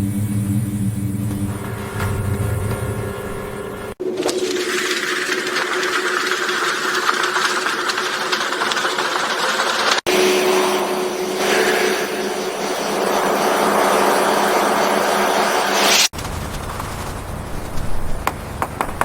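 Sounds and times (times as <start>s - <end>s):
processing machinery running: 0.0s - 17.5s.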